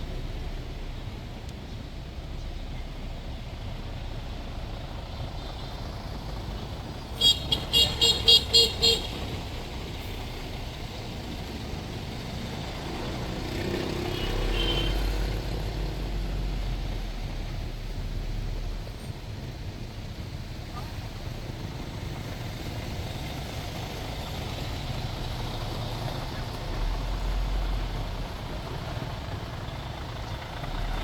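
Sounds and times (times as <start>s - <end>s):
street traffic: 0.0s - 31.0s
vehicle low rumble: 0.0s - 31.0s
vehicle horn beeping: 7.2s - 9.4s, 14.1s - 15.2s.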